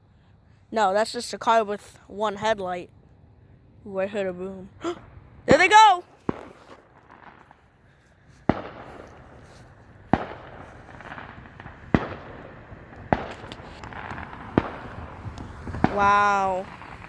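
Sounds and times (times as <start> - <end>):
fireworks booming: 4.8 - 17.0.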